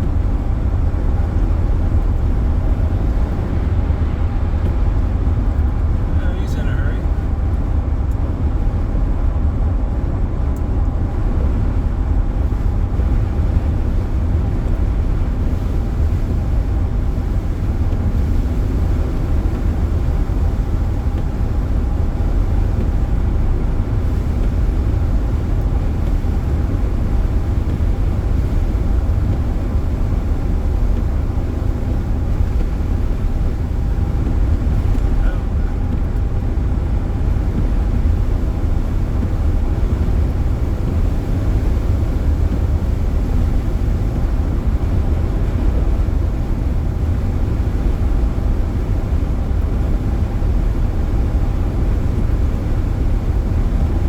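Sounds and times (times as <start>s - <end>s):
faint steady hum: 0.0s - 7.3s
road and wind noise in car: 0.0s - 54.0s.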